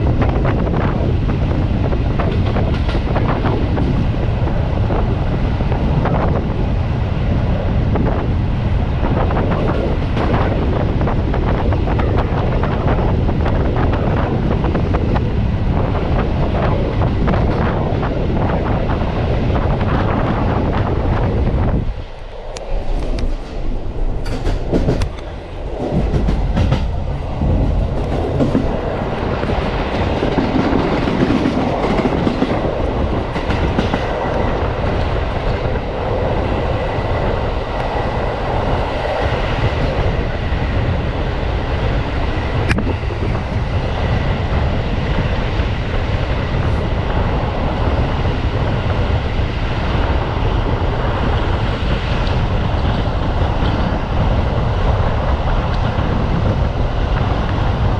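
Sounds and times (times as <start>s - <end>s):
train wheels rumbling on track: 0.0s - 57.9s
wheels clacking over rail joints: 22.1s - 35.8s.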